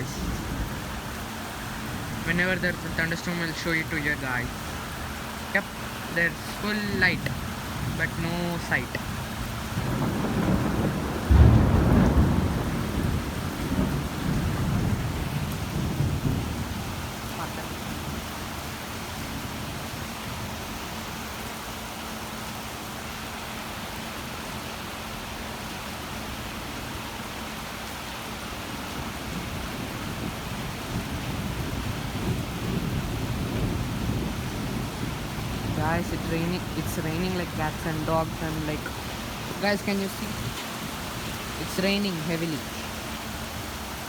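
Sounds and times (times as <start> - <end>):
thunder rumbling: 0.0 - 20.5, 28.9 - 43.8
heavy rain: 0.0 - 44.0.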